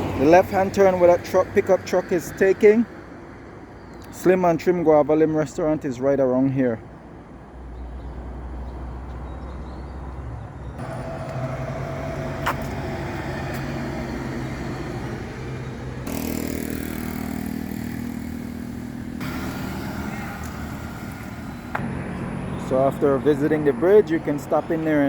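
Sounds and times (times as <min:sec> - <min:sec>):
road noise: 0:00.0 - 0:25.0
car engine hum: 0:10.8 - 0:25.0.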